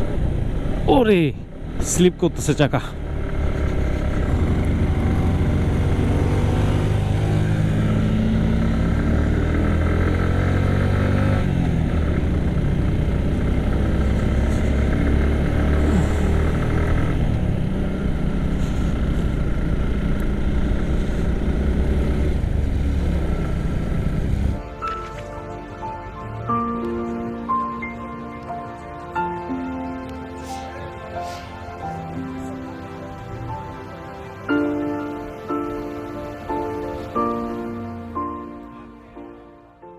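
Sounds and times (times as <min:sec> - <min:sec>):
motorcycle engine climbing: 0:00.0 - 0:29.6.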